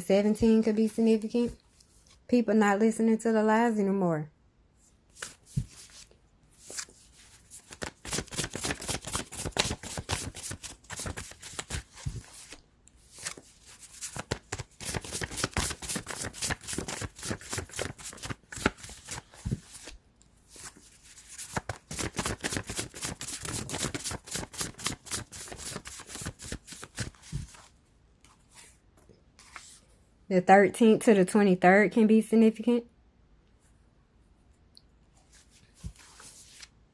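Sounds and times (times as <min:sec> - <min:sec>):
cards being shuffled: 0:05.1 - 0:28.7, 0:35.3 - 0:36.7.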